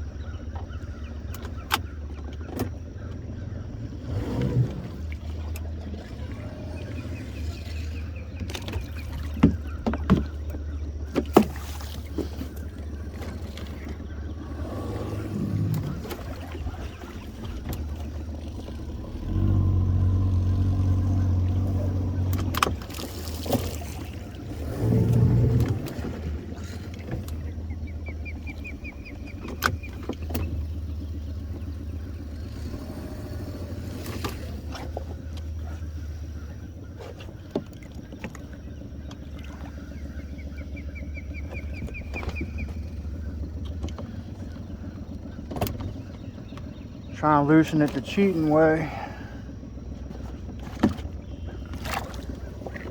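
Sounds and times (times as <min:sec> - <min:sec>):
boat motor idling: 0:00.0 - 0:52.9
sharp knocks and clicks: 0:08.4 - 0:11.5.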